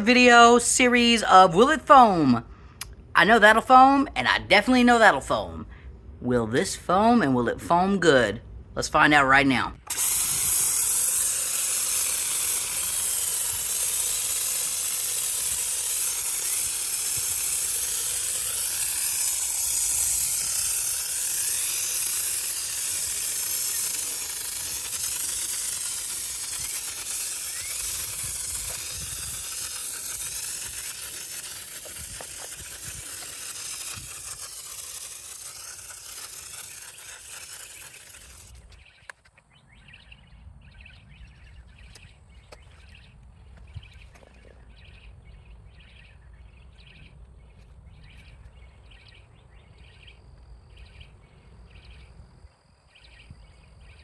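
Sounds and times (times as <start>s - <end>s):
foam sprayer hissing: 9.9s - 38.6s.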